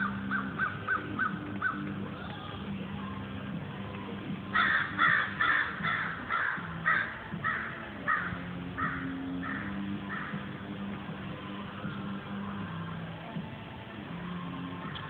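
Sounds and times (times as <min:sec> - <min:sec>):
bird harsh calls: 0:00.0 - 0:02.1, 0:04.5 - 0:10.7.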